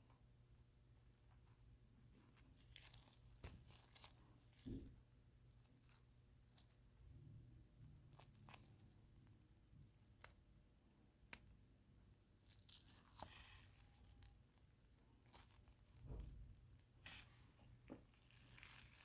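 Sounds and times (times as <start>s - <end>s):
soft tearing rustles: 1.2s - 6.9s, 12.1s - 19.0s.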